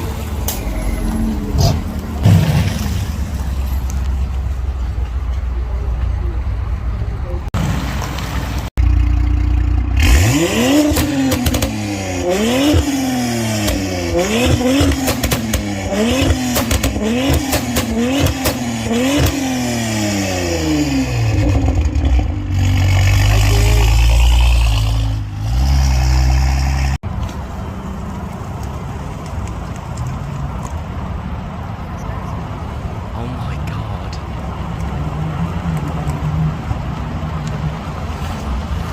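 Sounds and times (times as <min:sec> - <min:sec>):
car engine revving: 0:08.8 - 0:27.0.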